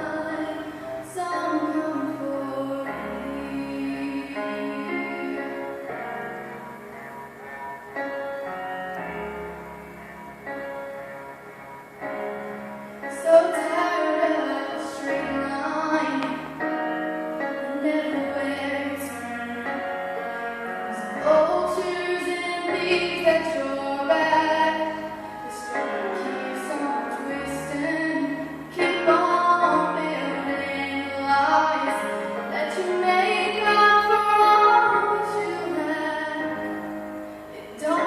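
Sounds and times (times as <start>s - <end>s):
woman singing: 0.0s - 5.9s, 13.0s - 16.7s, 17.4s - 38.0s
instrumental accompaniment: 0.0s - 38.0s.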